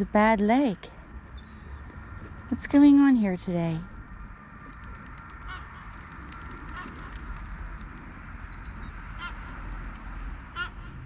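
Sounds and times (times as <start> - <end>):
low background noise: 0.0 - 11.0
gulls calling: 1.0 - 11.0.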